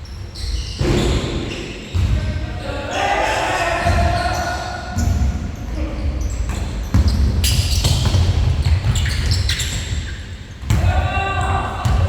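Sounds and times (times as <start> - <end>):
shoe squeaks: 0.0 - 2.8, 4.1 - 10.7
basketball bouncing: 6.5 - 10.0, 10.6 - 12.0.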